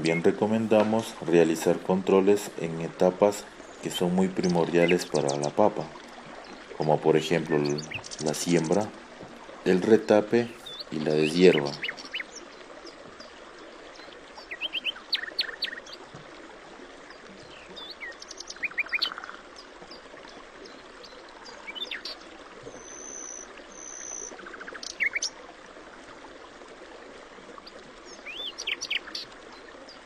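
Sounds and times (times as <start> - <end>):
small birds chirping: 0.0 - 16.2, 17.0 - 25.4, 27.6 - 30.0.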